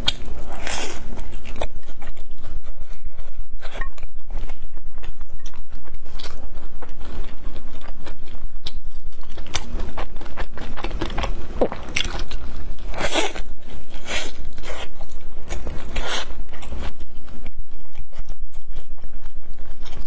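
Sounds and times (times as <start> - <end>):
wet chewing: 0.0 - 20.0.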